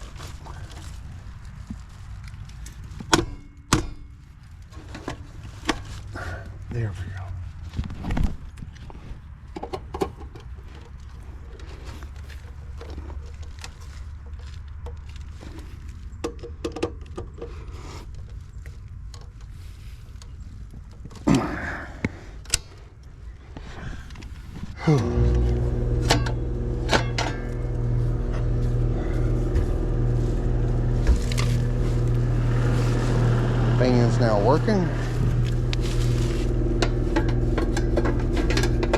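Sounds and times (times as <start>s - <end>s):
low mechanical hum: 17.0s - 38.9s.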